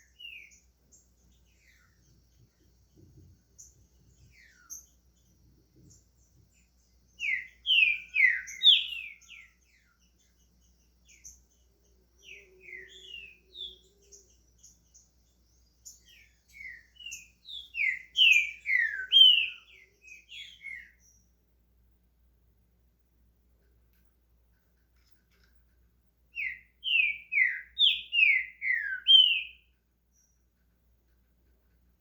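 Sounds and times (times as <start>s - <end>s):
bird singing: 0.0s - 21.4s, 26.3s - 30.7s.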